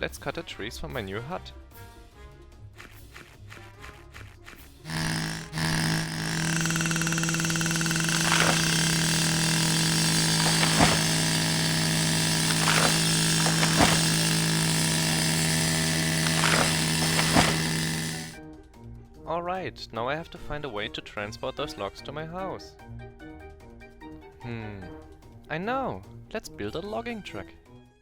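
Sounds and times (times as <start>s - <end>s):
chainsaw cutting: 2.8s - 18.4s
sharp cracks: 4.9s - 18.4s.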